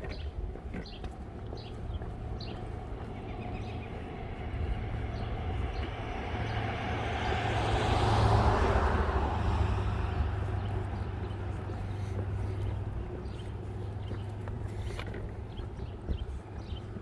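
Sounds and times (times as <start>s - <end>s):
vehicle driving past: 2.8s - 14.0s.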